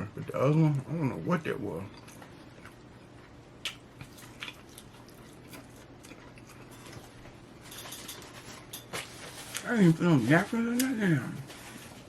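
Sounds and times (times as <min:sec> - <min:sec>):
person chewing food: 0:01.8 - 0:09.6
mouth clicks and smacking: 0:03.6 - 0:04.8.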